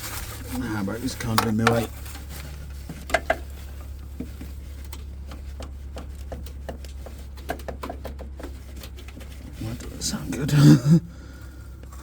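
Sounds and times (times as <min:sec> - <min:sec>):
hands working under dashboard: 0:00.0 - 0:12.0
steady low hum: 0:08.4 - 0:12.0.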